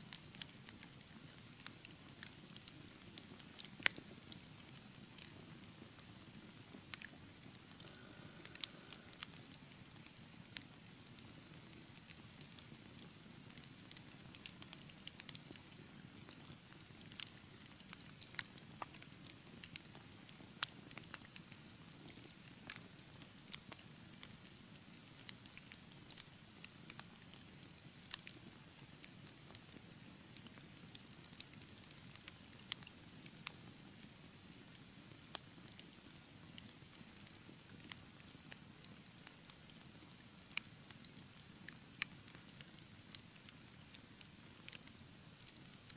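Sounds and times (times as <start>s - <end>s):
wood fire crackling and popping: 0.1s - 45.9s
low rumble of flame: 1.5s - 13.6s.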